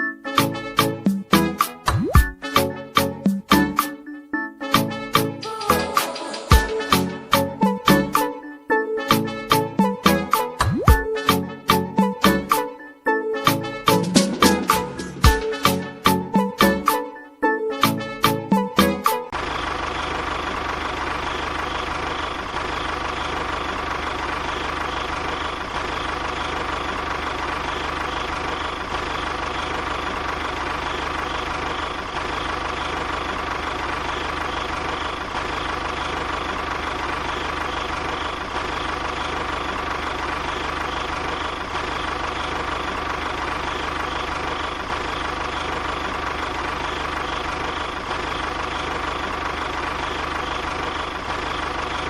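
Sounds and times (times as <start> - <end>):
motor running: 19.4 - 52.0.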